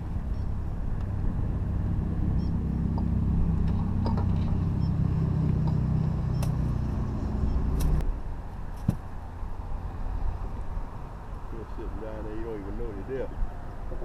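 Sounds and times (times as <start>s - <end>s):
boat motor humming: 0.0s - 8.0s.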